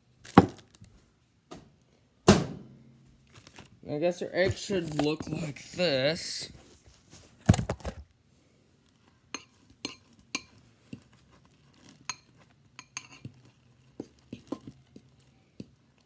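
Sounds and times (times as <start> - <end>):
metal utensil clinking against bowl: 9.4 - 10.6, 12.0 - 13.4.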